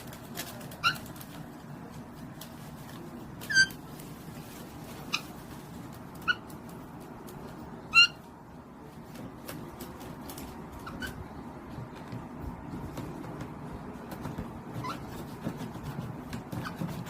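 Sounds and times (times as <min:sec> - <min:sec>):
parrot whining calls: 0:07.9 - 0:08.3.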